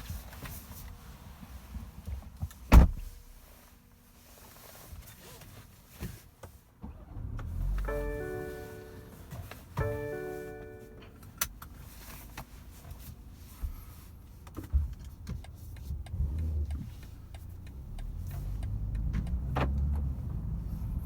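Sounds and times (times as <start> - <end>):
car engine rumbling: 6.8 - 21.0.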